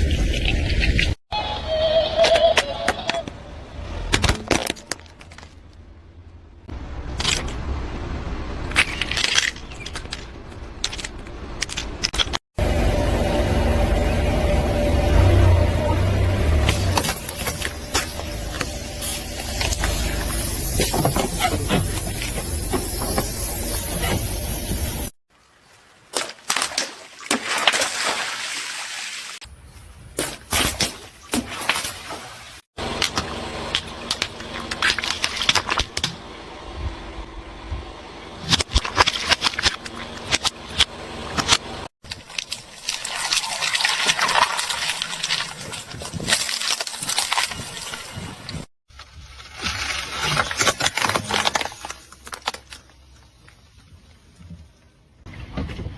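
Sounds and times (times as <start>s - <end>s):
car crushing brittle objects: 4.1s - 5.8s, 8.7s - 12.4s, 32.8s - 36.1s, 38.4s - 53.7s
car engine humming: 12.6s - 25.1s
object crunching under car tyre: 44.1s - 53.7s.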